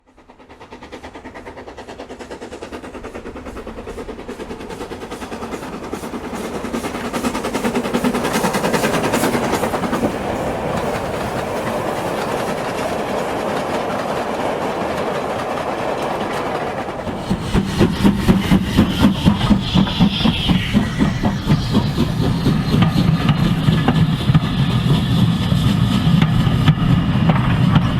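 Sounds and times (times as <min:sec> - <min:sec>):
model train wheels clicking: 0:00.0 - 0:27.9.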